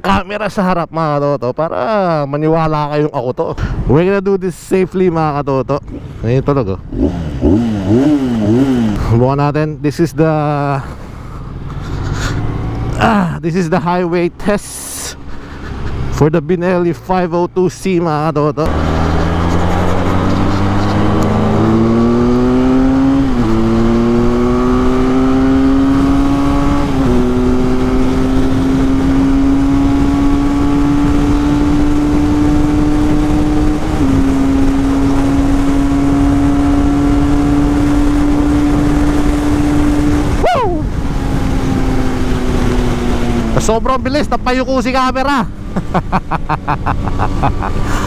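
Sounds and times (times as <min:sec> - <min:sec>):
motorcycle engine accelerating: 0:05.8 - 0:09.3, 0:10.4 - 0:13.3, 0:18.5 - 0:48.0.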